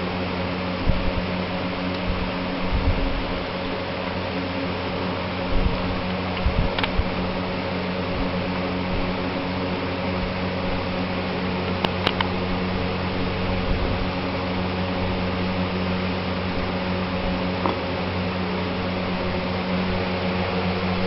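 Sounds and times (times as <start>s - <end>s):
mechanical fan hum: 0.0s - 21.0s
sharp clicks: 11.7s - 12.3s.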